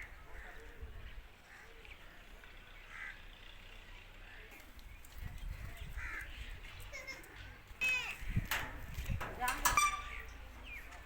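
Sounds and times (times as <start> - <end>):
harsh bird calls: 9.6 - 11.0.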